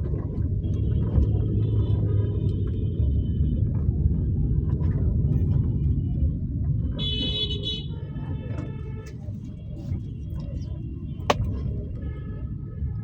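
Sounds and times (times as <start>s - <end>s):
car engine and road rumble: 3.7s - 12.2s.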